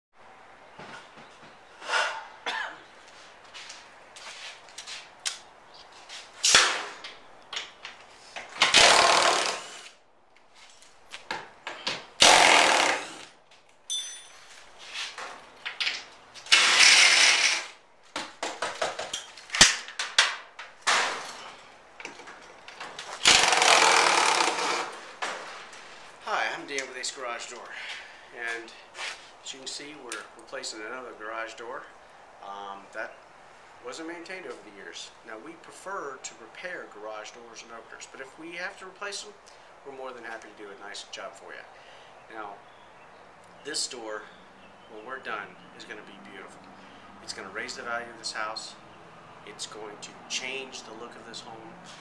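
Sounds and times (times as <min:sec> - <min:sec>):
power tool running in bursts: 0:08.7 - 0:10.0, 0:12.2 - 0:13.3, 0:23.2 - 0:24.9
sharp knocks and clatter: 0:18.1 - 0:25.5.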